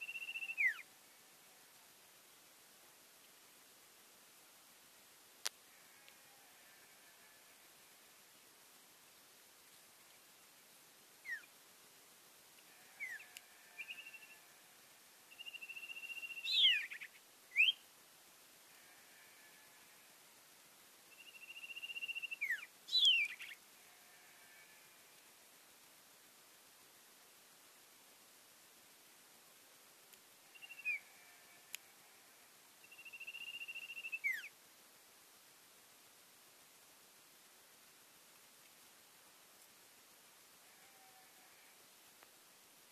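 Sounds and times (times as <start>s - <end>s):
bird singing whistles and trills: 0.0s - 0.8s, 11.2s - 11.5s, 15.4s - 17.8s, 21.2s - 23.6s, 30.6s - 31.0s, 32.9s - 34.5s.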